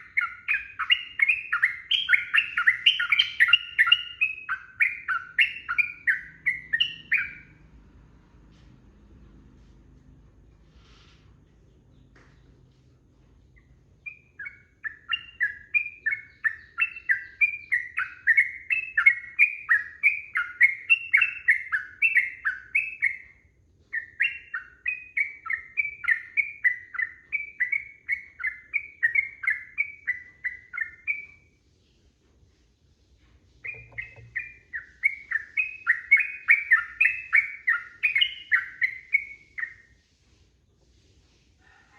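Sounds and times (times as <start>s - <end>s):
bird singing rapid whistled notes: 0.0s - 7.6s, 13.6s - 31.5s, 33.6s - 39.9s.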